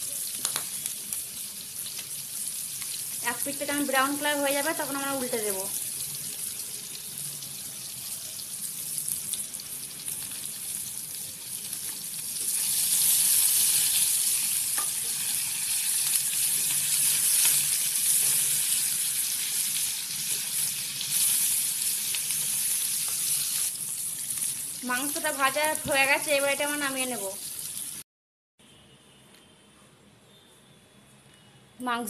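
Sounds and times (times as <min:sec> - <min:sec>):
chicken sizzling in oil: 0:00.0 - 0:28.0
spatula turning food in pan: 0:11.5 - 0:24.6.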